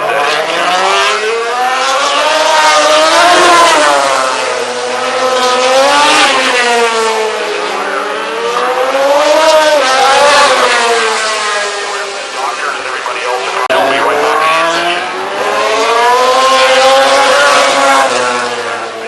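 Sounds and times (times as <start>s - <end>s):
racing motorcycle engines: 0.0s - 19.0s.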